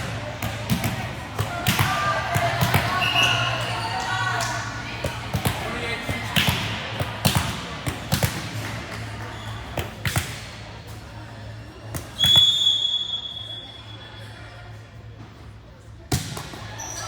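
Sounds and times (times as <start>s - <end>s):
referee whistle blast: 12.2s - 14.0s.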